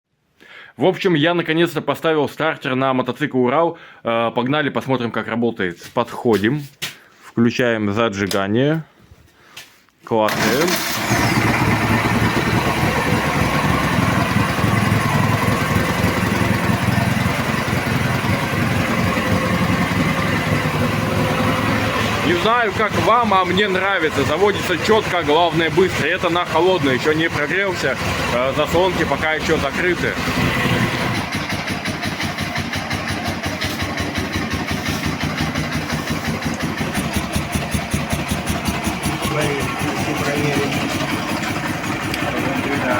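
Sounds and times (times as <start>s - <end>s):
motorcycle engine idling: 10.3s - 42.9s.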